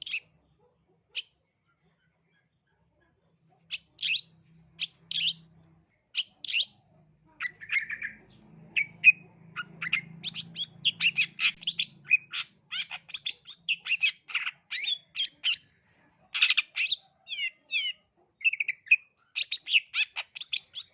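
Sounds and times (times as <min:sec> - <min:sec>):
shrike singing: 0:06.2 - 0:15.7.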